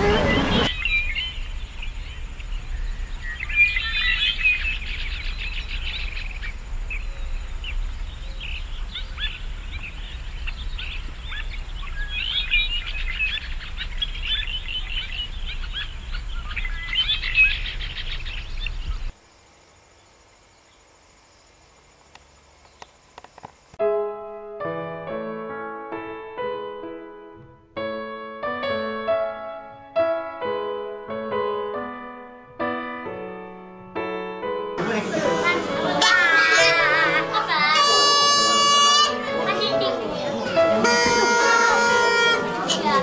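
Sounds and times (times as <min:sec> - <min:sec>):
birds chirping: 0:00.0 - 0:23.7, 0:34.8 - 0:43.0.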